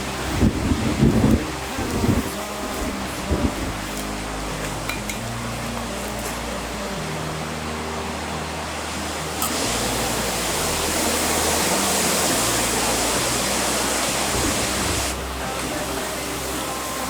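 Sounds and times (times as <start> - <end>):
strong wind rushing: 0.0 - 3.8.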